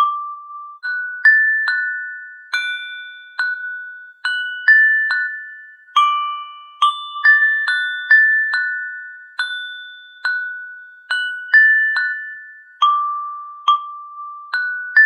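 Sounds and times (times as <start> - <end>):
bell-like glockenspiel melody: 0.0 - 15.0.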